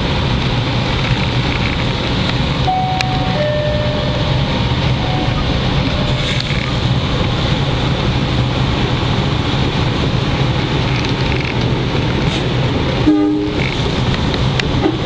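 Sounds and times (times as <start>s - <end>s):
rail noise with low hum: 0.0s - 15.0s
train rumbling past: 0.0s - 15.0s
short pitched tone: 2.7s - 6.4s.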